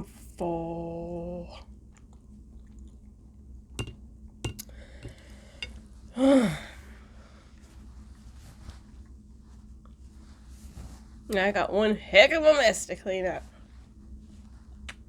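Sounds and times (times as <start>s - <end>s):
person sighing: 6.2s - 6.8s.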